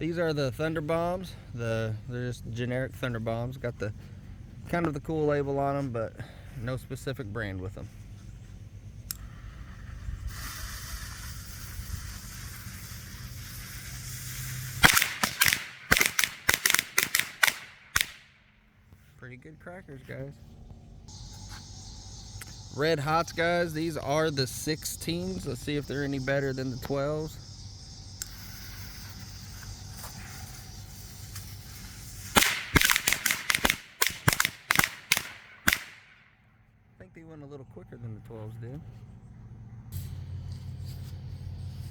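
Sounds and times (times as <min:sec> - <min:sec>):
lit fuse hissing: 0:09.7 - 0:18.2, 0:21.1 - 0:36.0
firecrackers banging: 0:10.6 - 0:18.3, 0:31.2 - 0:36.2.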